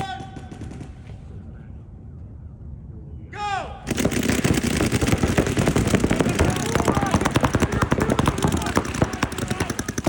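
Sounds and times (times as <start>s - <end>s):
paintball markers firing: 3.9s - 10.0s.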